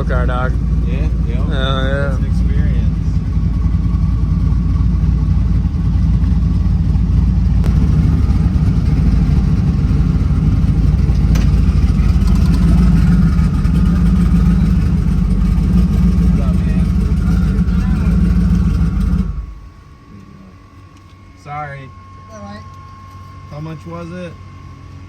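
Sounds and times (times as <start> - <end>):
car engine idling loud: 0.0 - 19.9.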